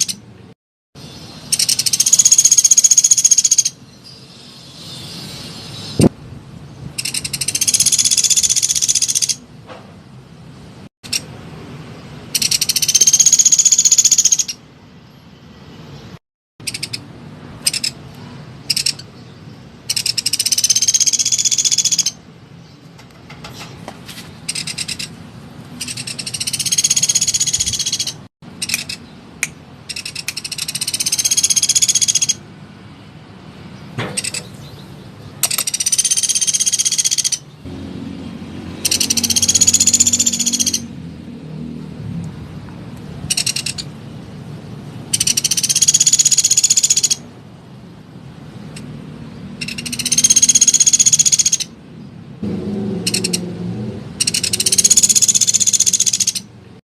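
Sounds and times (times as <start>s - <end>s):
woodpecker call notes: 0.0s - 0.2s, 1.5s - 3.8s, 7.0s - 9.5s, 12.3s - 14.6s, 16.6s - 18.0s, 18.6s - 19.2s, 19.8s - 22.2s, 24.5s - 25.1s, 25.8s - 32.4s, 34.2s - 34.7s, 35.4s - 37.6s, 38.8s - 41.0s, 43.3s - 44.0s, 45.1s - 47.3s, 49.6s - 51.8s, 53.0s - 53.5s, 54.2s - 56.5s
woodpecker trilling: 0.0s - 0.2s, 1.5s - 3.8s, 7.0s - 9.4s, 12.3s - 14.6s, 16.6s - 18.0s, 18.6s - 19.2s, 19.8s - 22.2s, 24.5s - 25.2s, 25.8s - 29.1s, 29.8s - 32.4s, 34.2s - 34.6s, 35.4s - 37.6s, 38.8s - 40.9s, 43.3s - 43.9s, 45.1s - 47.2s, 49.6s - 51.8s, 53.1s - 53.4s, 54.2s - 56.5s.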